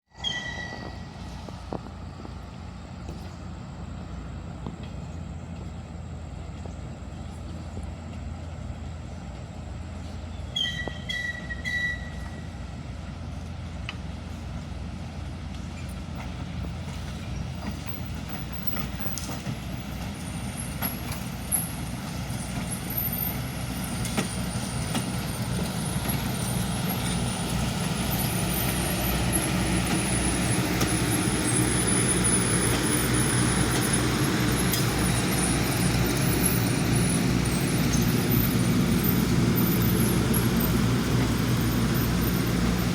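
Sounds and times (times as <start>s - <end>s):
train wheels squealing: 0.1s - 2.1s, 10.1s - 12.8s, 15.6s - 42.9s
train rumbling: 0.1s - 42.9s
thin high metallic squeal: 0.2s - 1.4s, 10.5s - 12.5s, 28.1s - 42.5s.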